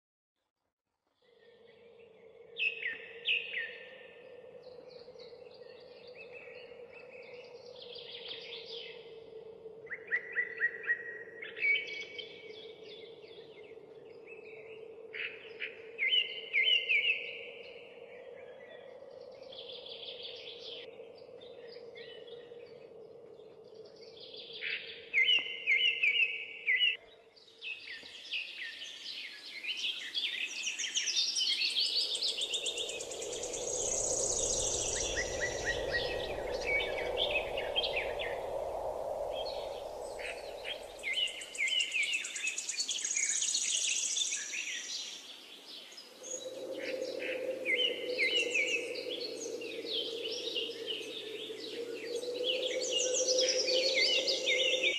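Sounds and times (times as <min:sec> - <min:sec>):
birds chirping and trilling: 0:01.2 - 0:54.9
low rushing noise: 0:32.0 - 0:42.2, 0:46.3 - 0:54.9.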